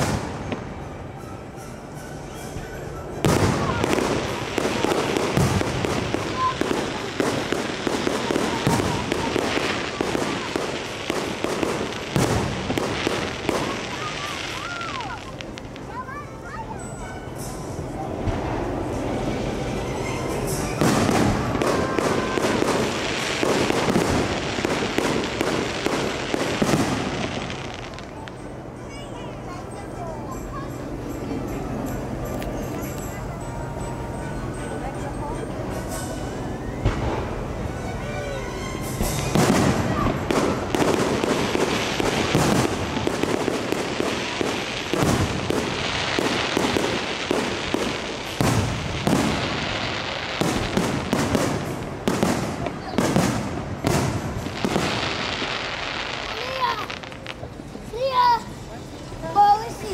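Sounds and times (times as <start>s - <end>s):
fireworks cracking and popping: 0.0s - 0.9s, 3.2s - 29.0s, 35.7s - 59.9s
deep firework booms: 3.2s - 14.4s, 20.8s - 27.7s, 39.1s - 55.2s.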